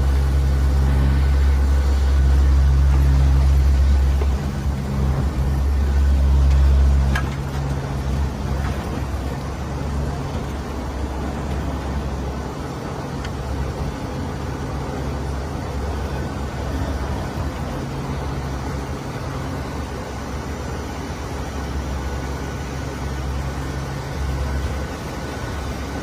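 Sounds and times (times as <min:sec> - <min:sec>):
turboprop aircraft cabin drone: 0:00.0 - 0:26.0.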